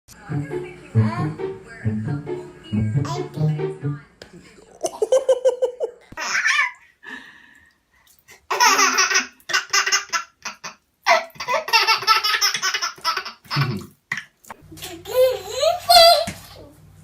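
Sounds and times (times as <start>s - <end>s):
baby laughing: 4.9s - 6.8s, 8.5s - 16.6s.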